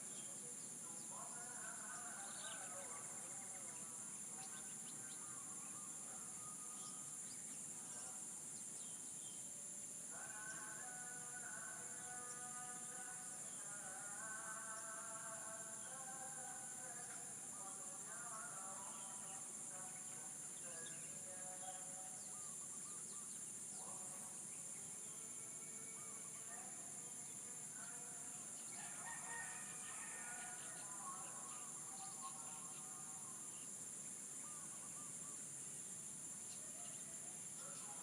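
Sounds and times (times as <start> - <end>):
distant roosters crowing: 28.7 - 31.2.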